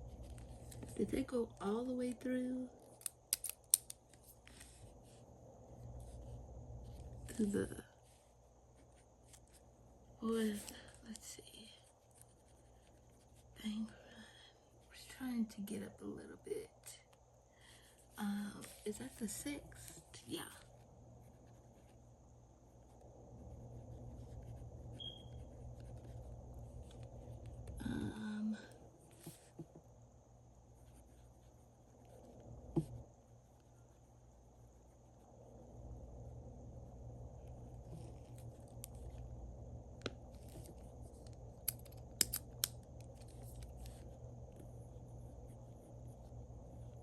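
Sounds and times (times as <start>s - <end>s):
writing and handling paper: 0.0s - 2.2s, 2.8s - 13.7s, 17.8s - 22.1s, 22.8s - 28.1s, 29.0s - 29.8s, 30.6s - 34.0s, 37.4s - 39.3s, 39.9s - 47.0s
steady low hum: 0.0s - 47.0s.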